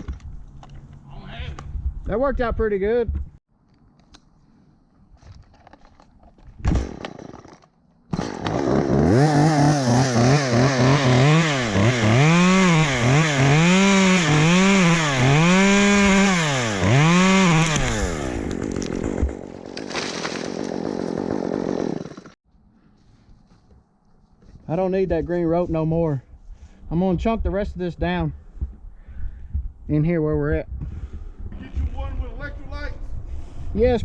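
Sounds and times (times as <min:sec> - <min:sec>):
chainsaw revving and idling: 0:08.2 - 0:19.4, 0:20.7 - 0:22.4.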